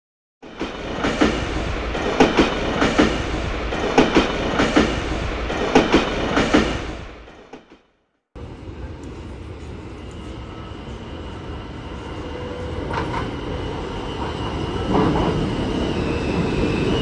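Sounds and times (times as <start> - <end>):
subway platform hum: 0.4 - 7.6, 8.4 - 17.0
train wheels clattering: 0.4 - 7.6.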